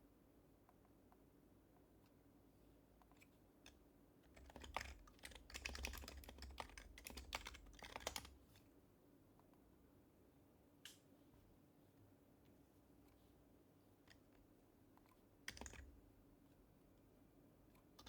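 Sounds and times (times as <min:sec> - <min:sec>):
soft keyboard typing: 0:03.0 - 0:08.4, 0:14.0 - 0:16.0.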